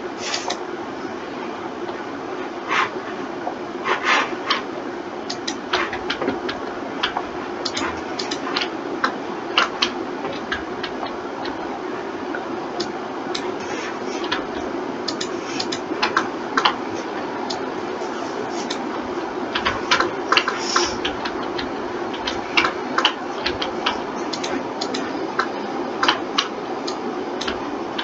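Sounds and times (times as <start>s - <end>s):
steady hum: 0.0s - 28.0s
computer mouse clicks: 5.3s - 11.6s, 12.3s - 16.8s, 19.5s - 28.0s
keyboard keys clicking: 5.3s - 11.7s, 12.3s - 17.6s, 18.6s - 28.0s.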